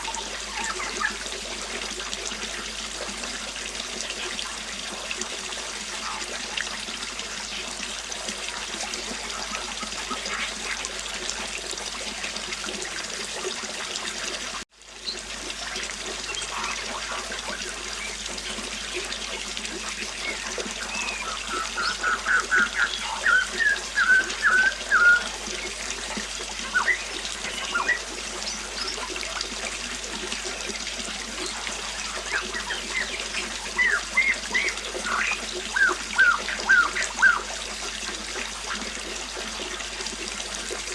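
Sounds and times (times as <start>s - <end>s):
river water flowing: 0.0s - 40.9s
songbird chirping: 20.2s - 29.1s, 31.4s - 37.5s.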